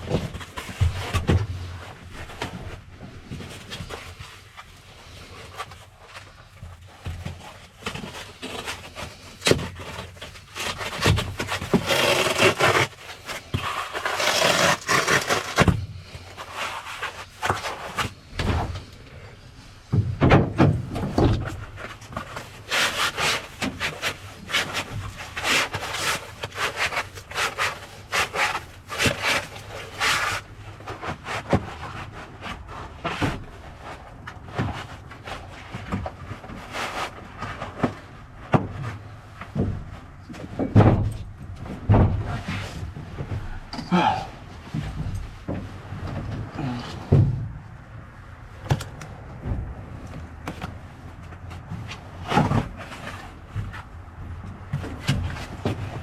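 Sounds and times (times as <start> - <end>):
insulation rubbing and rustling: 0.0 - 19.9, 20.5 - 43.7.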